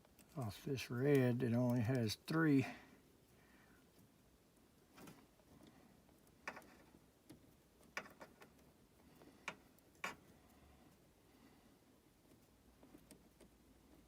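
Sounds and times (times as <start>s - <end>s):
faint plastic clicks and taps: 4.8s - 11.0s.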